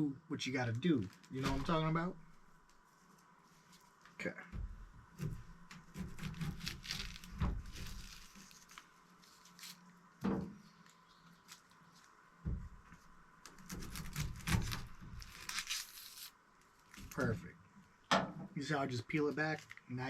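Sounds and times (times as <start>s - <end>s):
knife cutting onion: 5.2s - 8.2s.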